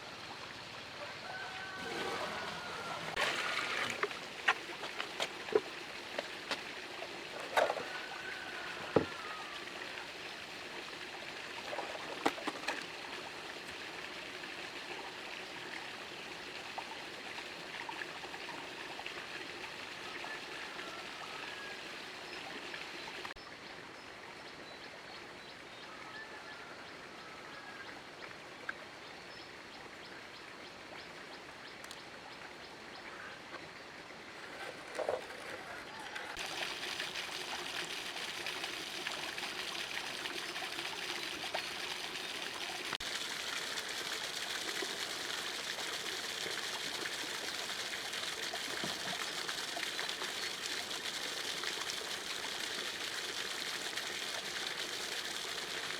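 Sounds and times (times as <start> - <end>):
water trickling: 1.4 - 23.4, 33.7 - 55.9.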